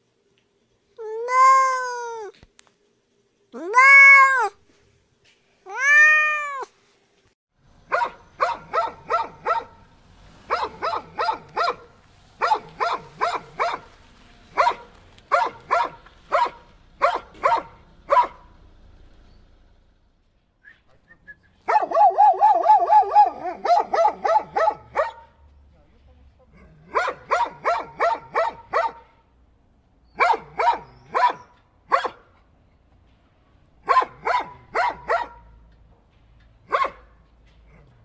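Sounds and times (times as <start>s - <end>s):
cat meowing: 1.0s - 2.4s, 3.6s - 4.6s, 5.7s - 6.7s
dog barking: 7.9s - 9.9s, 10.5s - 13.9s, 14.5s - 18.5s, 21.6s - 25.4s, 26.8s - 29.2s, 30.2s - 32.3s, 33.8s - 35.6s, 36.7s - 37.3s.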